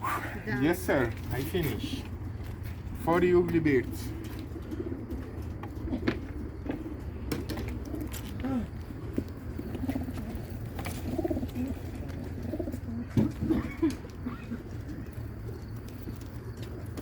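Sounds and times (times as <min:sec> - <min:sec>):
pigeons cooing: 0:03.8 - 0:17.0.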